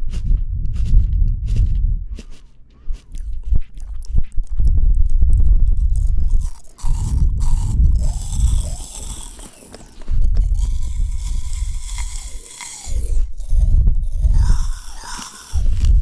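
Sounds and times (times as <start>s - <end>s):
deep low thudding: 0.0s - 9.1s, 13.1s - 14.6s, 15.6s - 16.0s
mouth clicks: 0.0s - 16.0s
wet crunching of fruit chewing: 0.0s - 16.0s.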